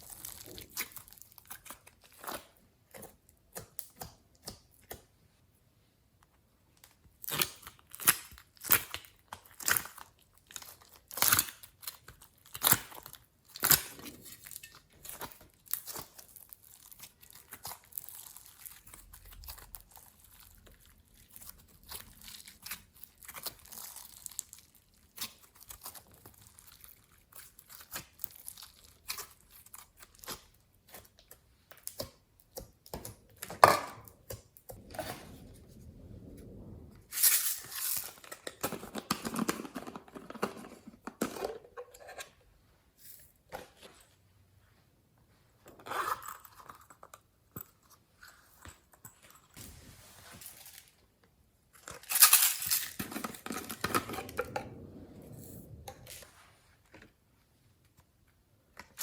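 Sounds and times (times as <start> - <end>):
slime crackling and popping: 15.0 - 30.5.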